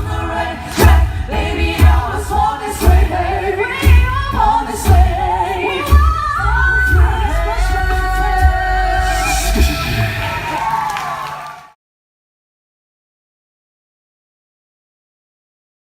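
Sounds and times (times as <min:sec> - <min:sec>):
group singing in harmony: 0:00.0 - 0:10.6
vocal percussion beat: 0:00.0 - 0:11.2.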